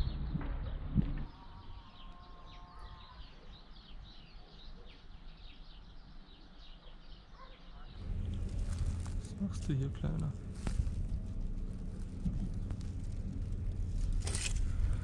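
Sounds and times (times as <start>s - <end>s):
small birds chirping: 0.1s - 15.0s
low thumps: 8.0s - 15.0s.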